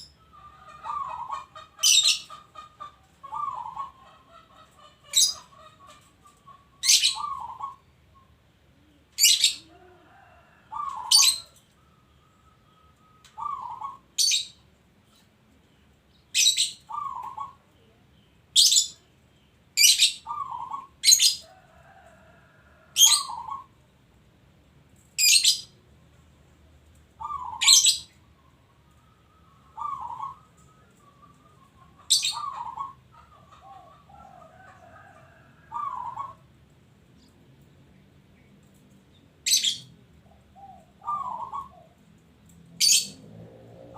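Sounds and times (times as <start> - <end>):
dove cooing: 0.3 - 11.6, 13.0 - 14.4, 16.4 - 18.0, 19.8 - 23.8, 27.2 - 36.5, 39.5 - 42.2.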